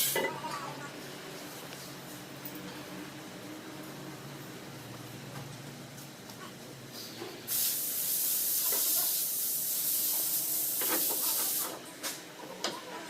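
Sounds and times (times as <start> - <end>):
pressurised spray hiss: 7.5 - 11.8.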